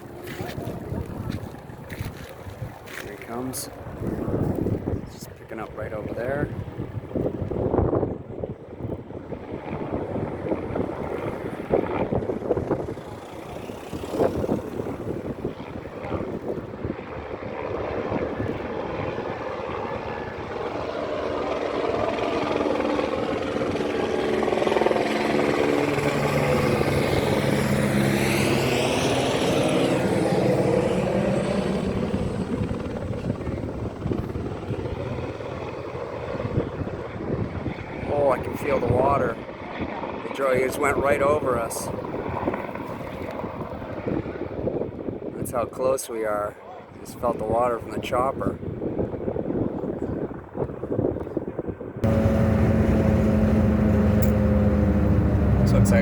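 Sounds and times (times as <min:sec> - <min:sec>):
wind buffeting microphone: 0:00.0 - 0:45.9, 0:46.6 - 0:56.0
helicopter rotor noise: 0:00.0 - 0:56.0.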